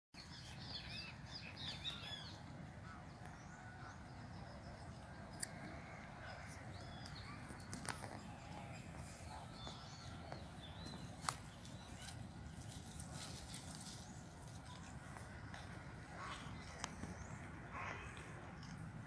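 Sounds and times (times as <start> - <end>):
small birds chirping: 0.2 - 19.0.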